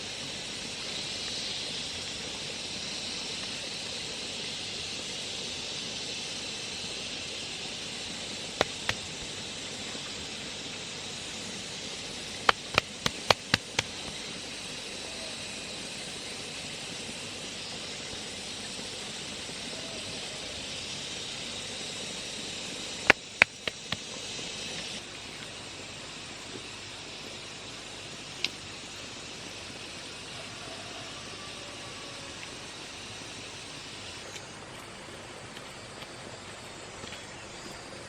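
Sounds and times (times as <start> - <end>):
high outdoor hiss: 0.0 - 38.0
sharp knocks of hard objects: 8.6 - 9.1, 12.5 - 14.1, 23.1 - 24.0.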